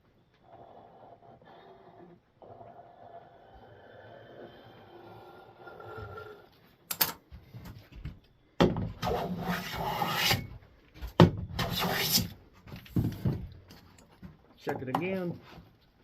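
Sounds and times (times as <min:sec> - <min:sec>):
hand plane shaving wood: 0:09.0 - 0:10.5, 0:11.6 - 0:12.4.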